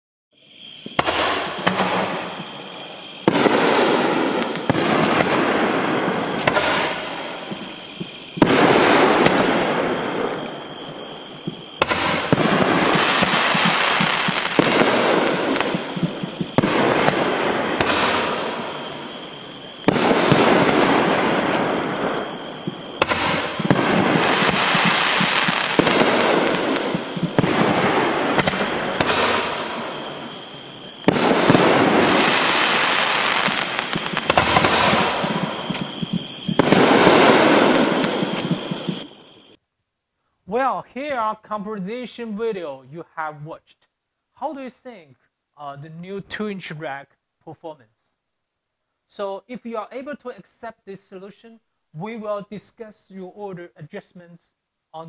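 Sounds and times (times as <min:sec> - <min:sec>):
fireworks bursting with bangs: 0:00.4 - 0:39.6.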